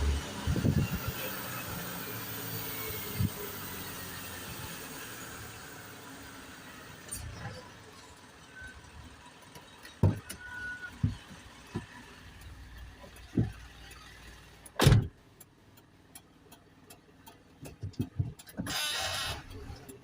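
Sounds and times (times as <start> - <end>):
vehicle engine rumble: 0.0 - 20.0
sharp knocks and thumps: 10.0 - 12.0, 13.0 - 13.8, 14.8 - 15.2, 17.6 - 18.7.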